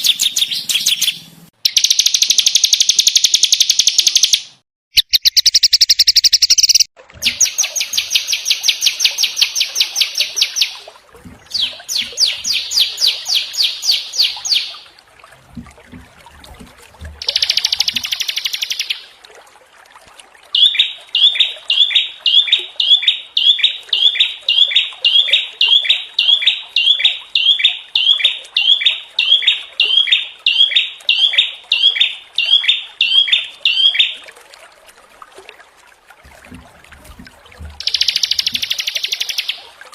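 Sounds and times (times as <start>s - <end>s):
songbird rattling trills: 0.0s - 10.8s, 17.2s - 19.0s, 37.8s - 39.6s.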